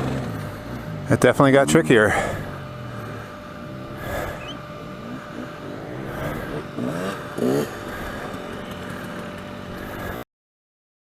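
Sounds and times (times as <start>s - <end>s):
dirt bike engine revving: 0.0s - 10.2s.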